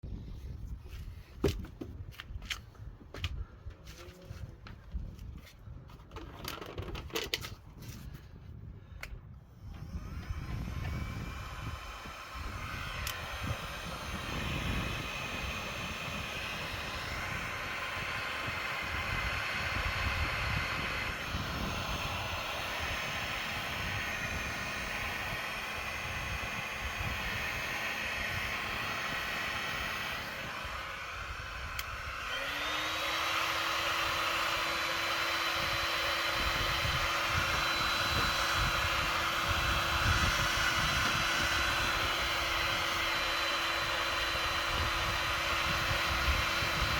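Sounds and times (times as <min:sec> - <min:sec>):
heat gun blowing hot air: 0:09.6 - 0:46.9.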